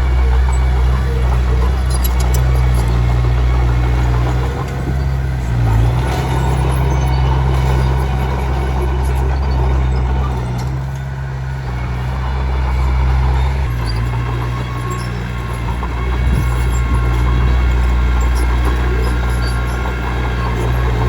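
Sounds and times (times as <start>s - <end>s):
bulldozer diesel engine running: 0.0s - 21.0s
tracks and stone clattering: 0.0s - 21.0s.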